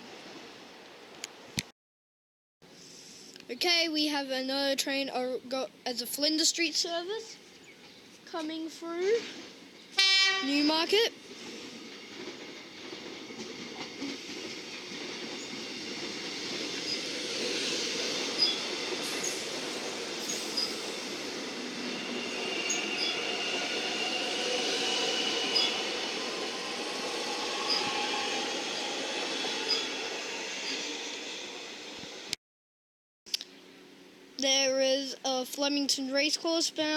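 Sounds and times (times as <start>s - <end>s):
electric train rumbling: 3.7s - 32.4s
high wheel squeal: 16.8s - 31.9s.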